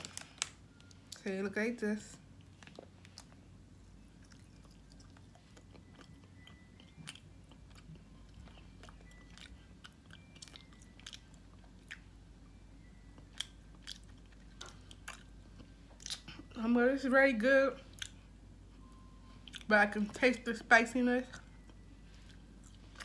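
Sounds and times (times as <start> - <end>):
faint chewing: 2.4 - 3.5, 4.1 - 12.1, 13.1 - 16.6, 17.8 - 19.7, 21.2 - 23.0.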